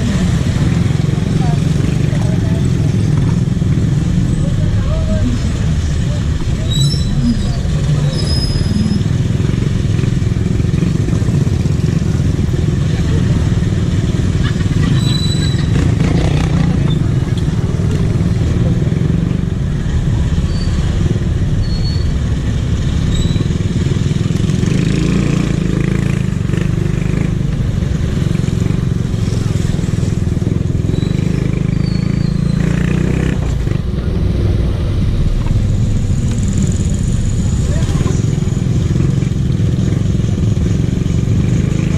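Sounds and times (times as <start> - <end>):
people's voices: 0.0 - 8.9, 11.0 - 20.4, 33.3 - 40.2
motorcycle engine running: 0.0 - 41.9.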